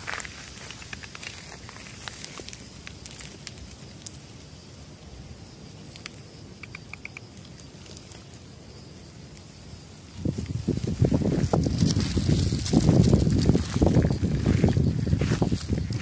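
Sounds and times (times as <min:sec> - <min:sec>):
faint ticks: 0:05.9 - 0:08.2.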